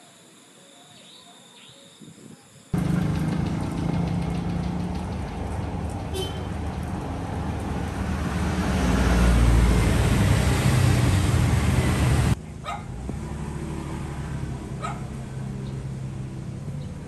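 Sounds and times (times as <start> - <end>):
loud rushing noise: 7.0 - 12.4.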